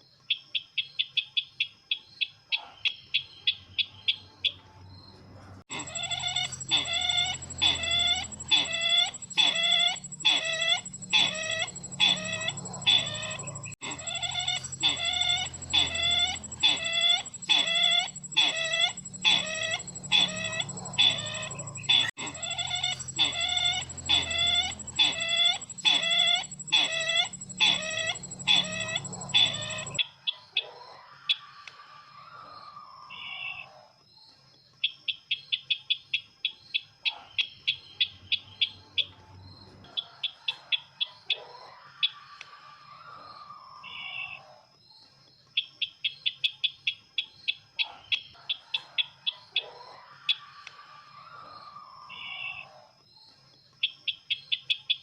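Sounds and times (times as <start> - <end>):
bird calling: 5.7 - 30.0.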